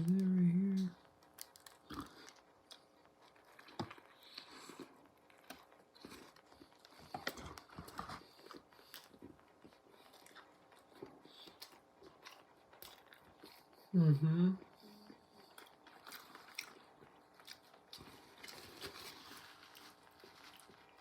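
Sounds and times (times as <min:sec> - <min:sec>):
biting and chewing food: 0:00.8 - 0:13.9, 0:14.6 - 0:21.0.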